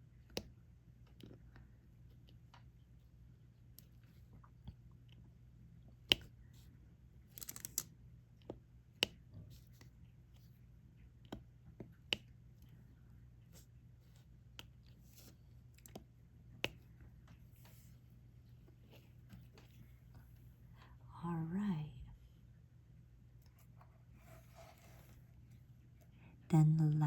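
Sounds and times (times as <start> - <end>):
pen clicking and tapping: 6.0 - 6.4, 11.2 - 12.4.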